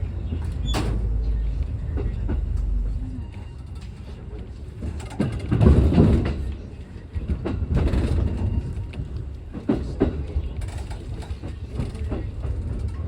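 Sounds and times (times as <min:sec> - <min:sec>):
train rumbling on rails: 0:00.0 - 0:13.0
wheels clacking over rail joints: 0:00.1 - 0:13.0.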